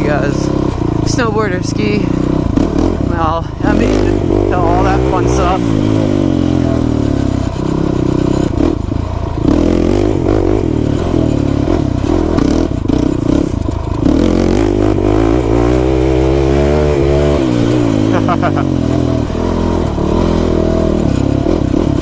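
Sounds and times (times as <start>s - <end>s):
quad engine revving: 0.0s - 22.0s
clatter: 6.6s - 15.6s, 18.9s - 22.0s.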